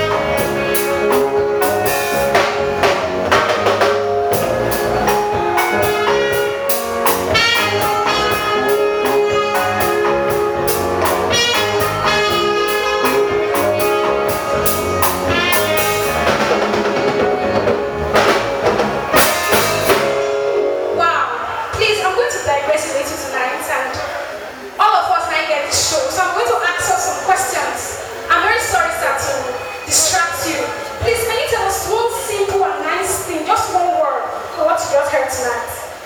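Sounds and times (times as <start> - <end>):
held horn lines: 0.0 - 21.0
drum kit beat: 0.0 - 21.8
band music: 0.0 - 23.4.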